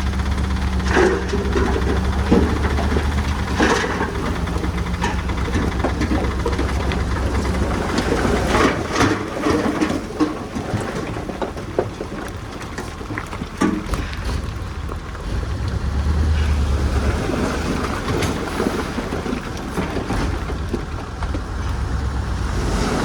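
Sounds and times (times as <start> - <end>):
metallic clanks and rattles: 0.0 - 15.4
diesel engine running: 0.0 - 23.0.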